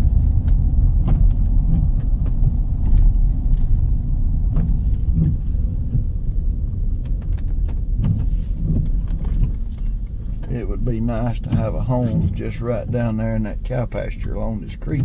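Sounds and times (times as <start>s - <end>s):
vehicle driving on road: 0.0s - 15.0s
light clicks and rattles: 4.5s - 15.0s.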